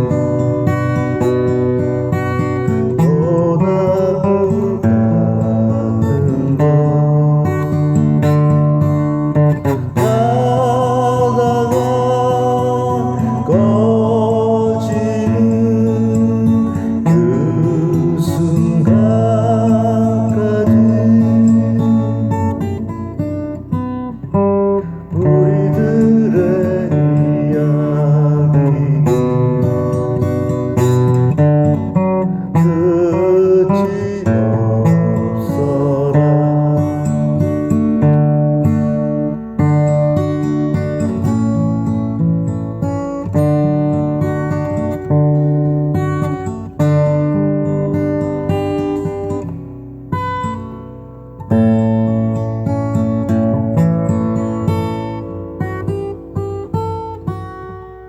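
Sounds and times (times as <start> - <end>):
strummed acoustic guitar: 0.0 - 58.0
person singing: 2.9 - 7.9, 10.0 - 22.5, 25.1 - 29.6, 32.5 - 37.6.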